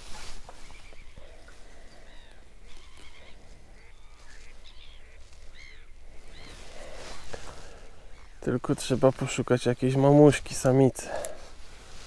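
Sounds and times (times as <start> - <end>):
bird calls: 0.0 - 9.3.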